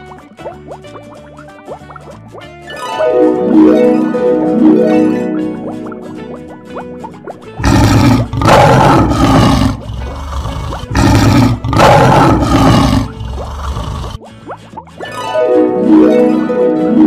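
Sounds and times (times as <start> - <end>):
plucked background music: 0.0 - 17.0
lion roaring: 7.6 - 14.2.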